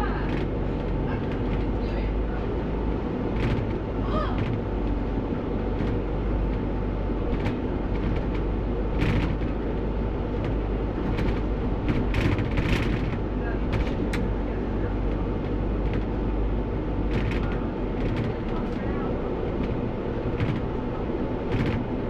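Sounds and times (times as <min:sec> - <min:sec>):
diesel engine rumble: 0:00.0 - 0:22.0
road noise: 0:00.0 - 0:22.0
knocks and rattles: 0:07.3 - 0:09.6, 0:10.3 - 0:14.3, 0:17.1 - 0:18.8, 0:19.5 - 0:20.8, 0:21.4 - 0:21.9.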